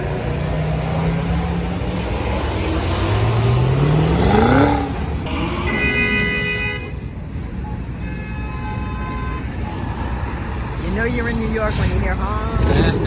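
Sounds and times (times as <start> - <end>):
car engine accelerating: 0.0 - 5.8, 10.8 - 13.0
car horn blaring: 3.9 - 10.5
faint horn honks: 5.3 - 10.2.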